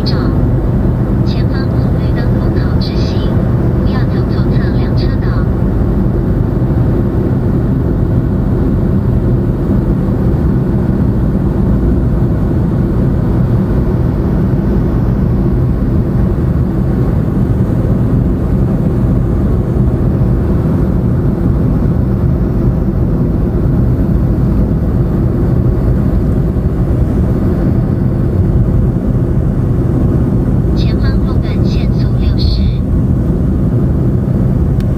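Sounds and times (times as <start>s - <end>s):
car road and engine rumble: 0.0s - 34.9s.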